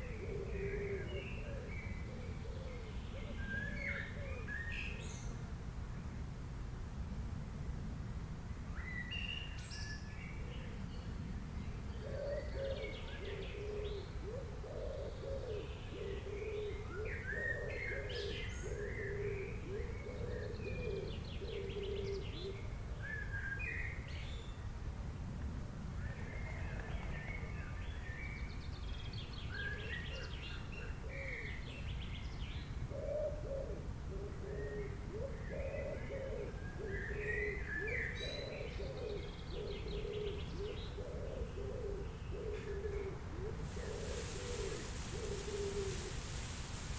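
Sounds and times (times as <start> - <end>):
low background hiss: 0.0 - 46.9
dove cooing: 12.0 - 22.6, 33.0 - 36.9, 38.3 - 46.9
small birds chirping: 43.5 - 46.9.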